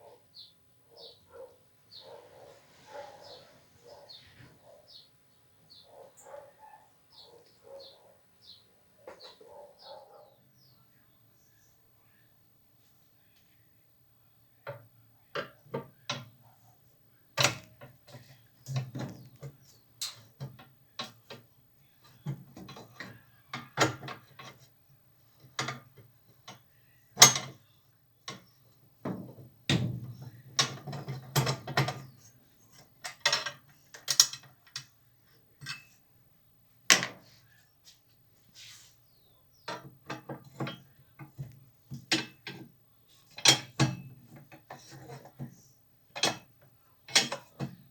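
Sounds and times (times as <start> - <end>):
tools and parts clicking and rattling: 17.4 - 24.7, 25.3 - 27.6, 28.3 - 35.0, 35.6 - 36.0, 39.7 - 47.9.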